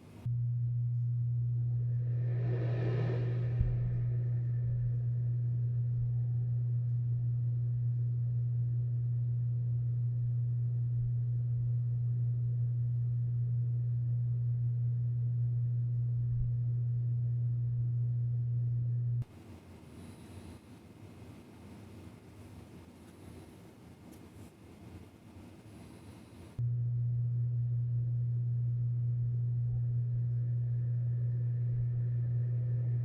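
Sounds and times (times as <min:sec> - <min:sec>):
duct fan humming: 0:00.0 - 0:09.1, 0:15.3 - 0:33.0.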